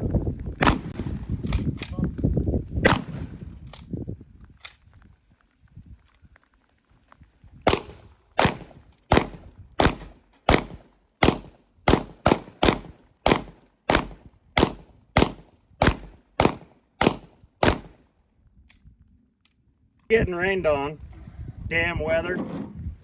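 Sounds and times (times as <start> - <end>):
gunshots with echo: 0.6 - 1.3, 2.8 - 3.3, 7.7 - 18.0.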